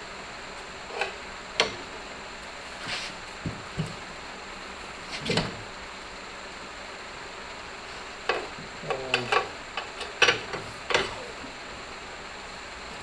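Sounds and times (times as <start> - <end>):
steady hiss: 0.0 - 13.0
clicks and knocks of hand work: 8.3 - 11.2.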